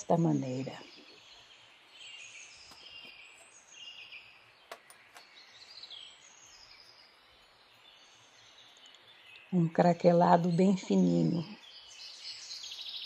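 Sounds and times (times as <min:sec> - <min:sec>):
small birds chirping faintly: 0:00.0 - 0:13.0
faint clicks: 0:08.7 - 0:09.5.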